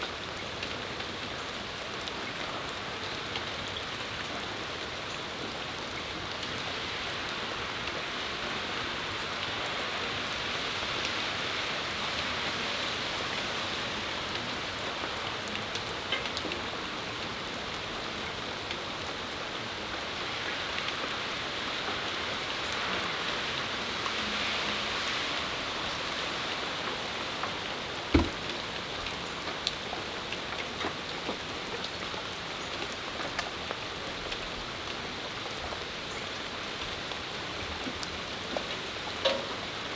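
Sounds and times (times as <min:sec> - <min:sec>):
rain falling on a patio: 0:00.0 - 0:39.9
sharp tap: 0:28.1 - 0:28.4.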